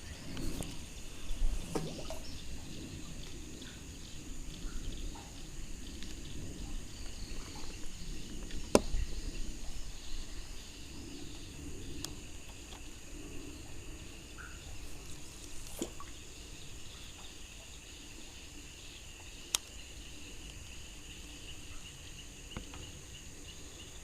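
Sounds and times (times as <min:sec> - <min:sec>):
crickets chirring: 0:00.0 - 0:24.0.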